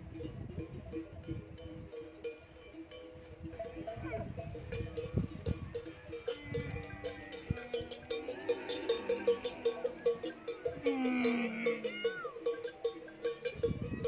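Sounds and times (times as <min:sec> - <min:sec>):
camel bells clanking: 0:00.0 - 0:14.0
animal call: 0:06.4 - 0:12.7.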